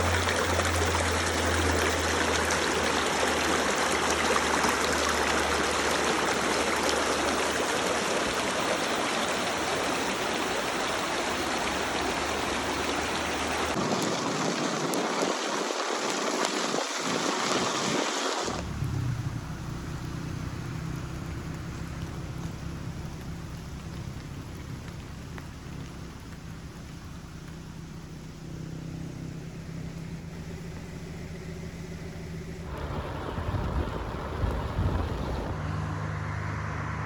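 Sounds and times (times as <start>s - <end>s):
forest stream flowing: 0.0s - 37.0s
low rumble: 31.5s - 35.8s.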